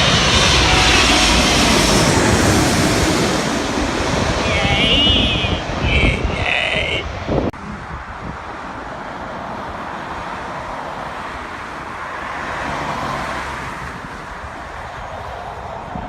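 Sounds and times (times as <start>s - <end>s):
jet engines rushing: 0.0s - 11.9s.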